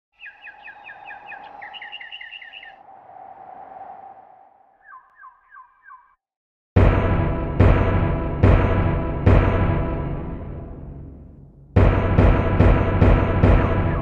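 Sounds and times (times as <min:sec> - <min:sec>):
bird chirping rapidly: 0:00.1 - 0:02.9, 0:04.7 - 0:06.2
loud music hit: 0:06.8 - 0:14.0.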